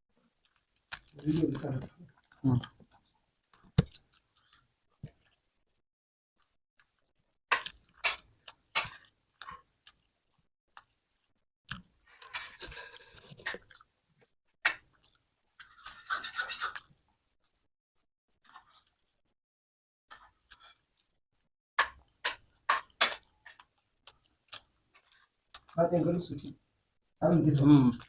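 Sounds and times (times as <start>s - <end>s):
chewing and mouth noise: 0.4s - 5.4s, 21.8s - 25.8s.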